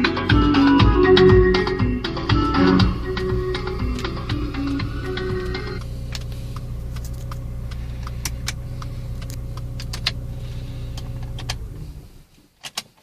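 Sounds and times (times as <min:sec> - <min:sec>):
car engine idling: 0:00.0 - 0:12.4
light irregular clicking: 0:05.4 - 0:10.2.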